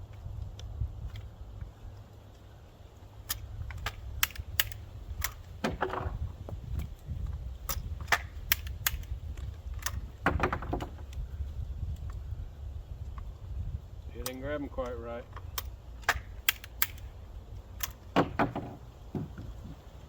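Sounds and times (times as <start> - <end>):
shotgun handling clicks and knocks: 3.1 - 11.3, 14.2 - 19.9
shells rattling: 3.2 - 5.6, 7.6 - 10.2, 15.4 - 18.8.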